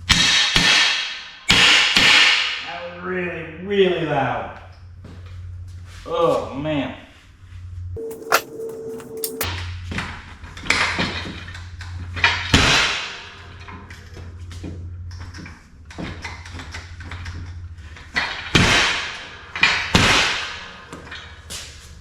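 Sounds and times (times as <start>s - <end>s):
sharp metallic clanks and pops: 8.0s - 9.5s.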